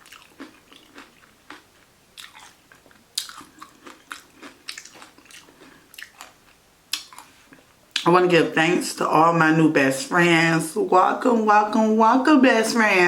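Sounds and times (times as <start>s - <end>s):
chewing and crunching taco: 0.0s - 8.1s.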